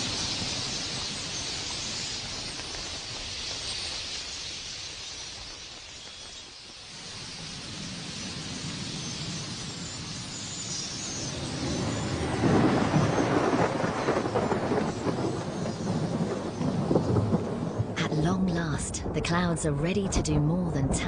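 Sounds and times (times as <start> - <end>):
rolling thunder: 11.0 - 21.0.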